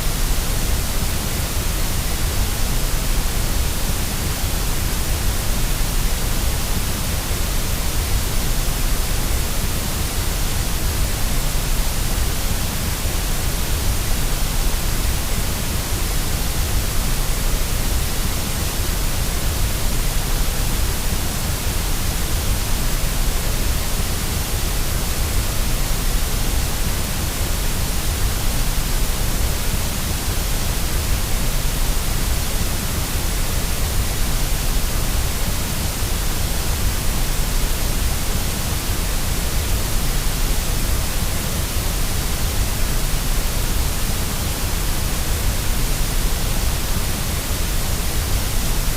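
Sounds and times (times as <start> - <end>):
white noise hiss: 0.0 - 48.9.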